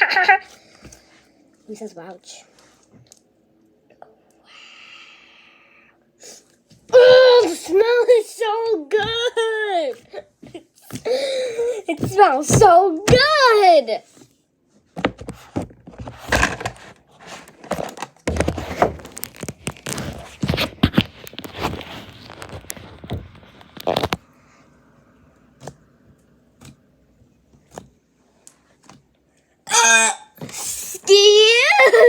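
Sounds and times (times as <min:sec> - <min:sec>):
slime kit scraping and crinkling: 0:15.5 - 0:24.2.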